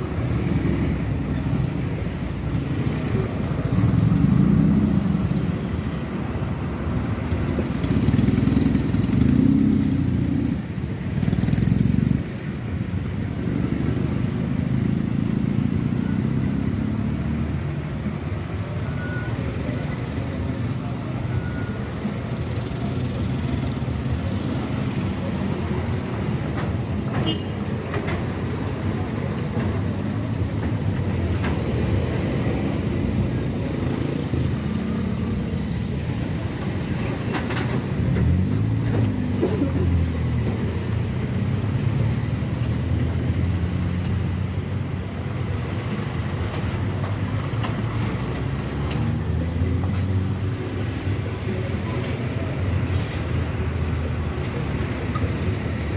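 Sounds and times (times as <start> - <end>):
road noise: 0.0 - 55.9.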